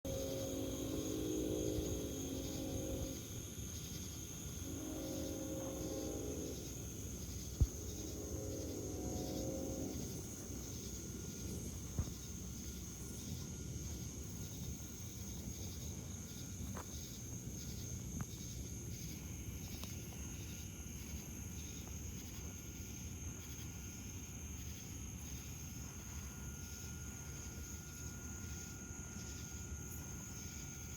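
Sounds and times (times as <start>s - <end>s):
cicadas droning: 0.0s - 30.9s
pulsing insect chirp: 0.1s - 30.9s.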